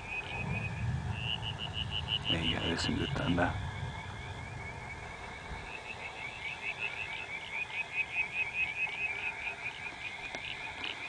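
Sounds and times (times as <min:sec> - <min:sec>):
thunder rumble: 0:00.0 - 0:06.6
frog calling: 0:00.0 - 0:11.0.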